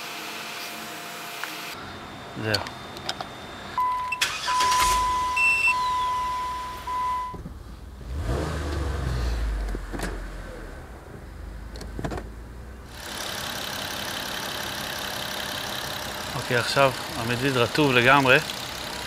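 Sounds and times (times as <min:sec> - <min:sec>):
engine idling: 0:03.5 - 0:19.0
high-pitched electronic beep: 0:03.8 - 0:07.4
rumbling handling noise: 0:08.6 - 0:12.9.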